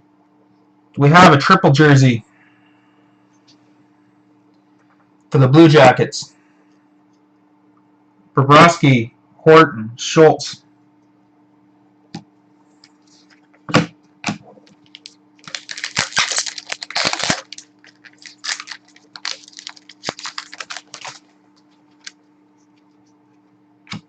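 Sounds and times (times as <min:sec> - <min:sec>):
wrappers crinkling and tearing: 0:14.7 - 0:22.2
cards shuffling: 0:14.7 - 0:22.9.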